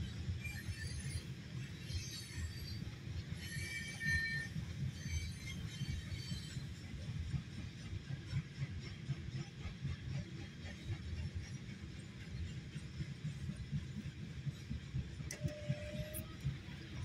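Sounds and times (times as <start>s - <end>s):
high-pitched wheel squeals: 0.4s - 6.6s, 15.3s - 16.5s.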